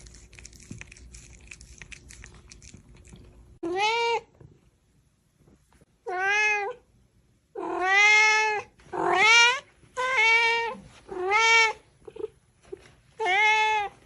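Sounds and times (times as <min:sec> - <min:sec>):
cat meowing: 0:07.6 - 0:11.8.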